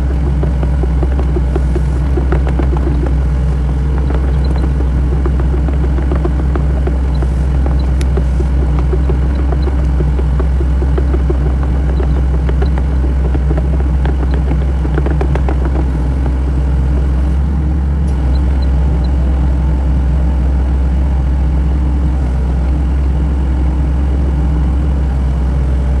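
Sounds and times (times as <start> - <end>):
machine clicks and knocks: 0.0 - 17.5
excavator diesel engine running: 0.0 - 26.0.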